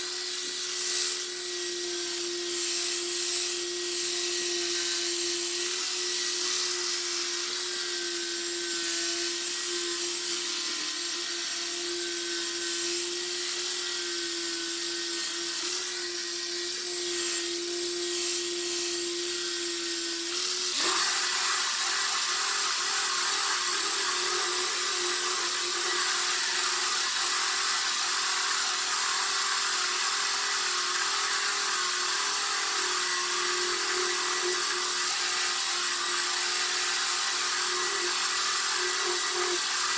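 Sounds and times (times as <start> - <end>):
power sander running: 0.0 - 39.9.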